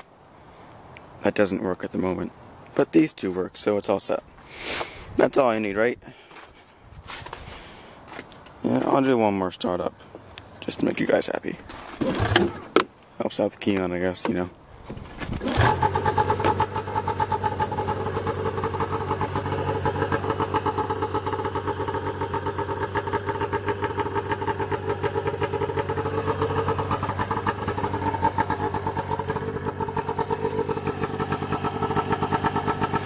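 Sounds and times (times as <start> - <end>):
snowmobile engine idling: 15.4 - 33.0.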